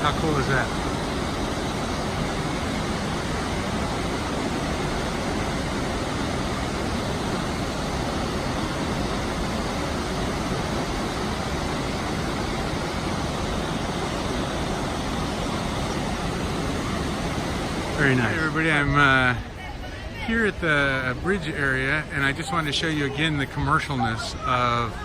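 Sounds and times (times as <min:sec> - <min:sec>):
waterfall roaring: 0:00.0 - 0:25.0.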